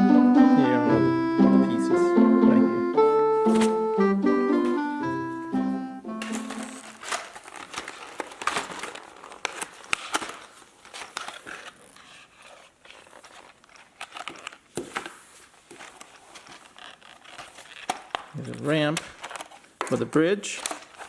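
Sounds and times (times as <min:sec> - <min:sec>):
plastic packaging crinkling and tearing: 0:06.2 - 0:21.0.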